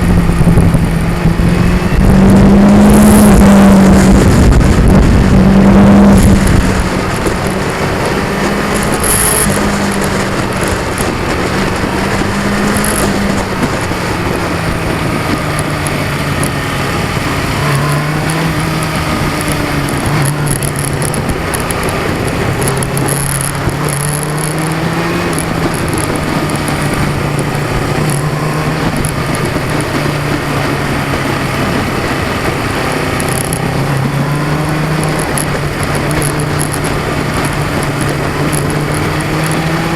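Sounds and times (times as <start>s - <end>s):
motorcycle engine running: 0.0s - 39.9s
wind noise: 0.0s - 39.9s
camera mount vibrating: 8.4s - 16.6s, 17.6s - 30.2s, 33.1s - 34.3s.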